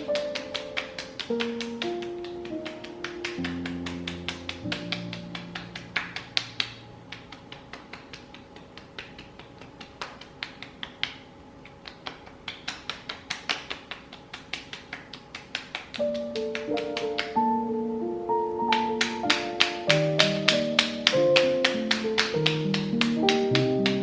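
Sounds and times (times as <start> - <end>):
fingertips tapping on skin: 0.1 - 17.4.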